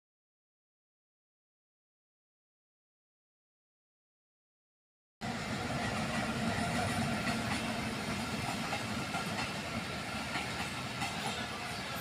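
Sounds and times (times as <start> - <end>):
diesel locomotive engine: 5.2 - 12.0
train wheels rumbling on rails: 5.2 - 12.0.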